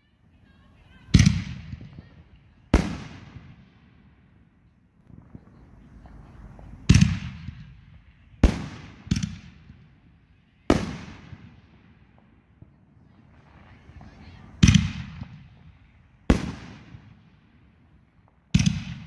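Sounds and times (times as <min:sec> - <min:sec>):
firework shells booming: 0:01.1 - 0:04.2, 0:05.0 - 0:10.1, 0:10.7 - 0:19.0
firework launch sounds: 0:10.6 - 0:19.0.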